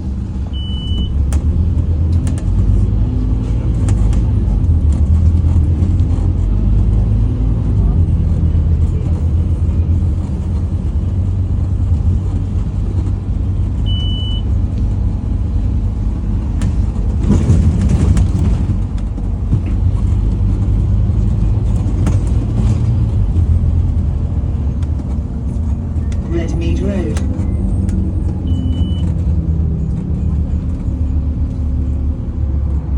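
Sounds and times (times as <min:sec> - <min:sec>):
bus diesel engine rumbling: 0:00.0 - 0:32.9
short high beep: 0:00.6 - 0:01.1, 0:13.9 - 0:14.4, 0:28.5 - 0:29.1.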